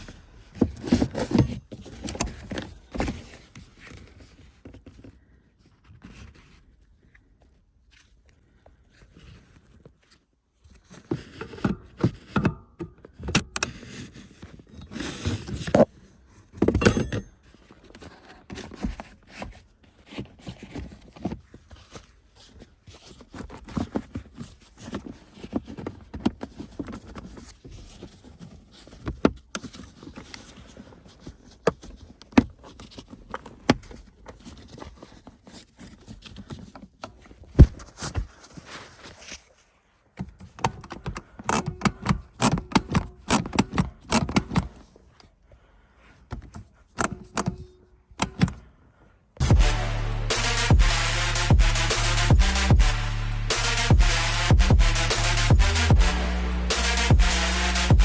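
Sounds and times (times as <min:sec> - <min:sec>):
tools clicking and knocking: 0:16.6 - 0:17.4, 0:40.4 - 0:44.8, 0:46.3 - 0:48.6
short rasping bursts: 0:49.4 - 0:58.0.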